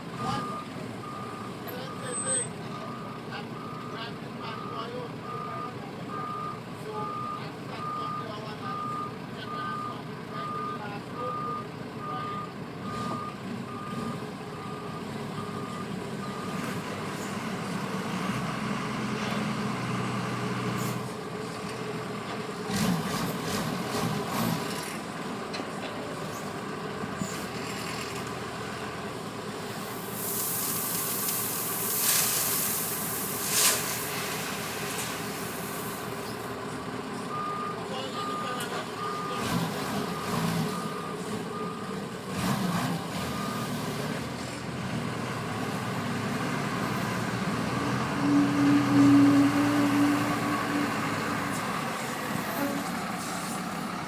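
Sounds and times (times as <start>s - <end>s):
diesel engines running: 0.0s - 54.0s
reversing alarm beeping: 0.2s - 16.6s, 37.3s - 39.4s, 40.1s - 41.9s
loud hiss: 29.9s - 36.2s.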